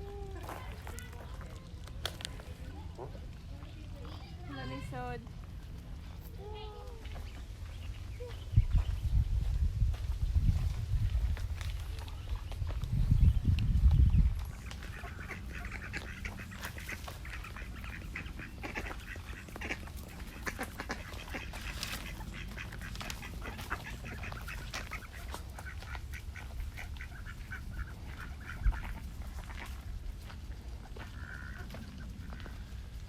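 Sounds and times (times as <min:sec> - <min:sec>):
wind rumble on microphone: 0:05.0 - 0:33.0
ducks quacking: 0:14.4 - 0:29.8, 0:30.4 - 0:33.0.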